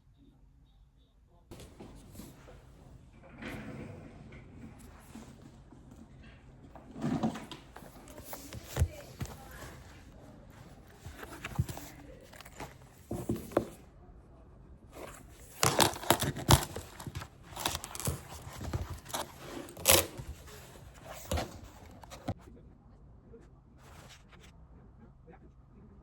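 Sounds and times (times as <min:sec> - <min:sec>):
rustles taps and clicks of handling: 0:04.7 - 0:13.8, 0:15.0 - 0:22.4.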